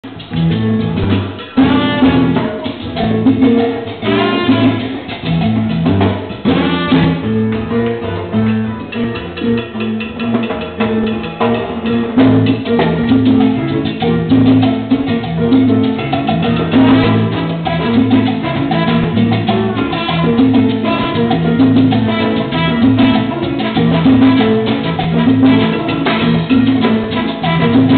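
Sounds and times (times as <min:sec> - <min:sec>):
salsa band playing: 0:00.0 - 0:27.9
brass stabs: 0:00.9 - 0:02.7, 0:04.0 - 0:05.2, 0:06.4 - 0:07.4, 0:16.8 - 0:17.5, 0:19.8 - 0:27.9.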